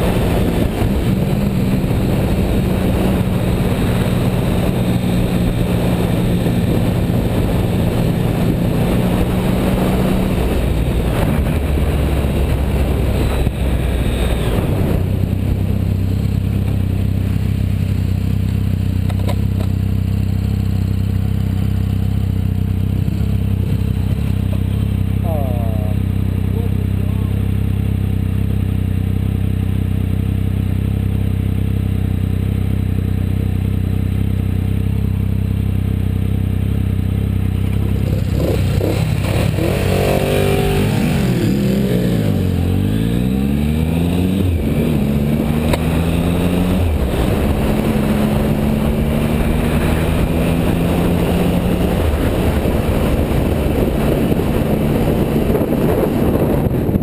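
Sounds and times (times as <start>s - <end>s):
wind over microphone: 0.0s - 18.0s, 37.9s - 57.0s
motorcycle engine: 0.0s - 57.0s
second motorcycle accelerating: 0.0s - 57.0s.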